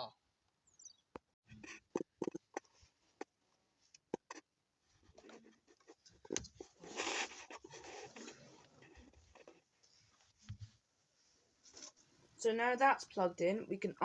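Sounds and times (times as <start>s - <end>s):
scraping and rustling: 1.5s - 12.2s.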